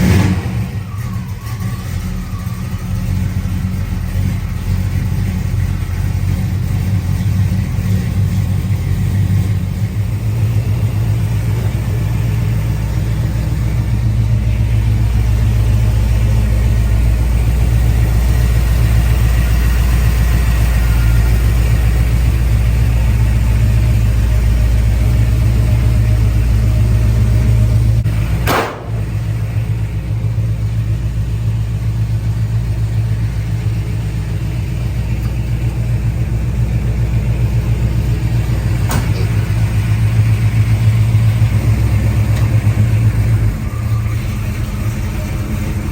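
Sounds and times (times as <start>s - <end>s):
car engine idling: 0.0s - 45.9s
click: 42.3s - 42.5s.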